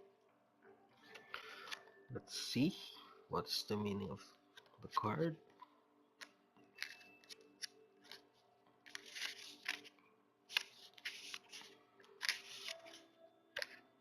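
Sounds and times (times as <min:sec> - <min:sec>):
faint background music: 0:00.0 - 0:14.0
paper pages being flicked: 0:08.9 - 0:09.9, 0:10.5 - 0:13.0.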